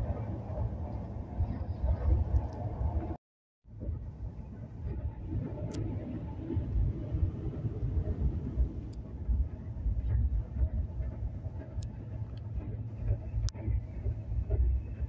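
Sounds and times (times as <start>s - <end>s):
train wheels rumbling on rails: 3.8s - 15.0s.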